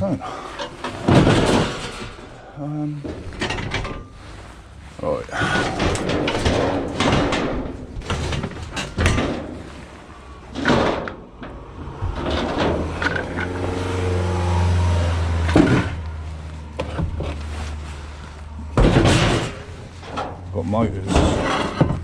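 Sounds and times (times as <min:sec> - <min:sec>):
sharp knocks and clunks: 0:00.0 - 0:02.4, 0:05.4 - 0:14.3, 0:15.2 - 0:16.2, 0:18.6 - 0:22.0
van engine running: 0:00.0 - 0:22.0.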